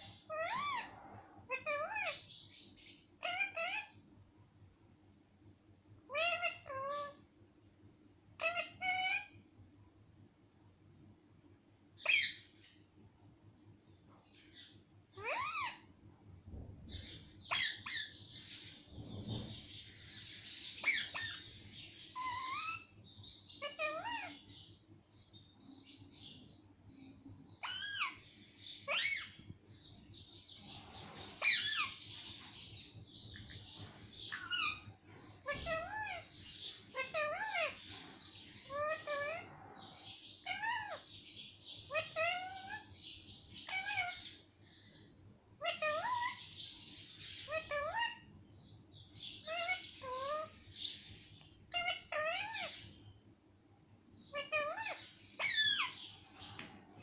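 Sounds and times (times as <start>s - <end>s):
parrot squawking: 0.0s - 2.2s, 3.2s - 4.0s, 6.1s - 7.2s, 8.4s - 9.4s, 12.0s - 12.4s, 15.2s - 15.9s, 17.5s - 18.1s, 20.8s - 21.5s, 22.1s - 22.9s, 23.6s - 24.5s, 27.6s - 28.2s, 28.8s - 29.4s, 31.4s - 32.1s, 34.3s - 37.9s, 38.6s - 41.1s, 41.8s - 42.9s, 43.6s - 44.4s, 45.6s - 46.5s, 47.4s - 48.3s, 49.4s - 50.6s, 51.7s - 52.9s, 54.3s - 56.1s
parrot raspy chatter: 0.1s - 2.2s, 6.1s - 7.2s, 8.4s - 9.3s, 36.9s - 37.9s, 38.6s - 41.0s, 41.8s - 42.8s, 43.6s - 44.4s, 45.6s - 46.5s, 47.4s - 48.3s, 51.7s - 52.8s, 54.3s - 56.0s.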